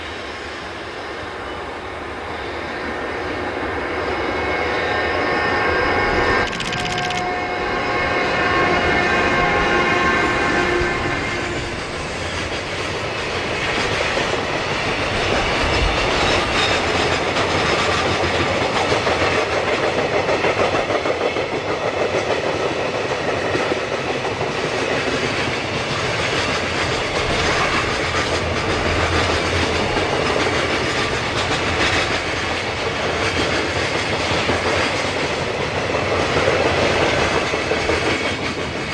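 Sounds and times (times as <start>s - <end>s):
freight train wheels clattering: 10.9s - 38.9s.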